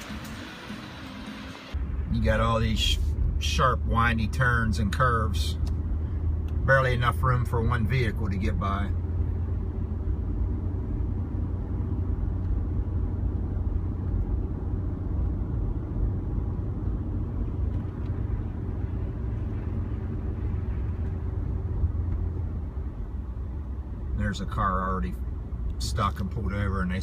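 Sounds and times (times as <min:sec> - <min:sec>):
vehicle engine and road rumble: 0:00.0 - 0:27.0.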